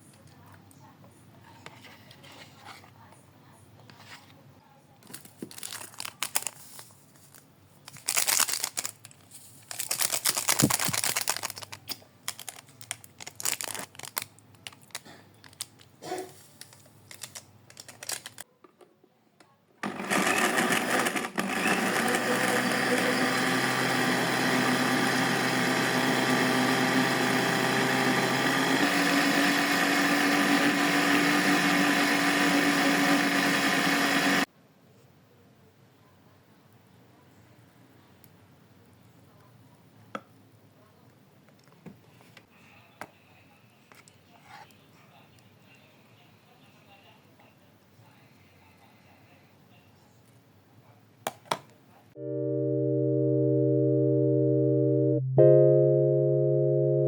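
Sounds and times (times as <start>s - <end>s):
rustling and clattering handling: 5.0s - 18.4s
small electric motor whining: 19.9s - 29.0s.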